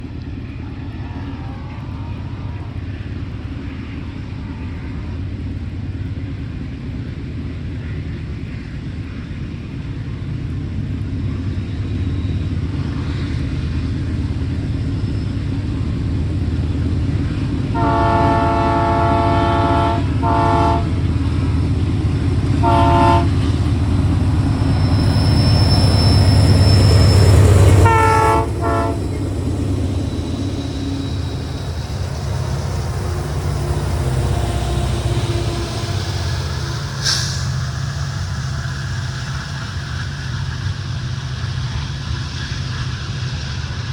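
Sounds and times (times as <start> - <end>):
train rumbling: 0.0 - 43.9
train horn blasts: 17.7 - 21.1, 22.4 - 23.6, 27.5 - 29.4.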